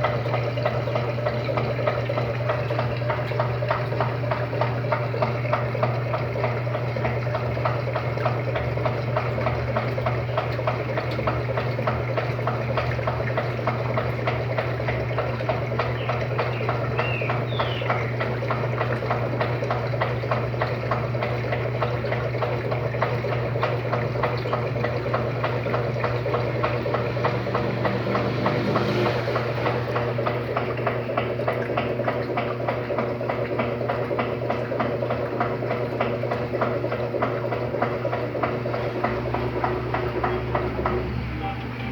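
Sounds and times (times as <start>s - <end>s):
washing machine motor hum: 0.0s - 41.9s
water churning and sloshing: 0.0s - 41.9s.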